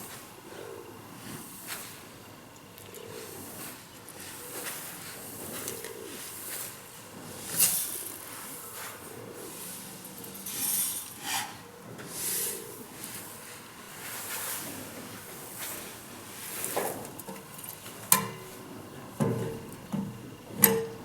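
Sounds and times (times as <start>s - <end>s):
pigeons cooing: 0.0s - 14.2s.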